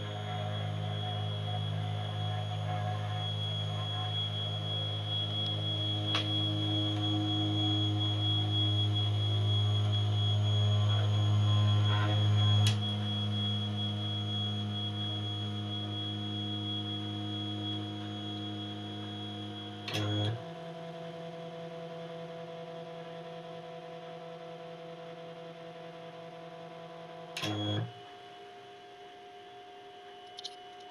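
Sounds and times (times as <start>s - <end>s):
milling machine motors whining: 0.0s - 21.2s
short click: 19.9s - 20.4s, 27.4s - 27.9s.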